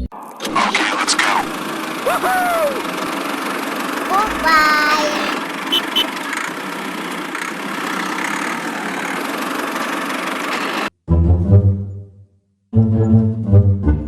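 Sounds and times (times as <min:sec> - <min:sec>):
music: 0:11.1 - 0:14.0.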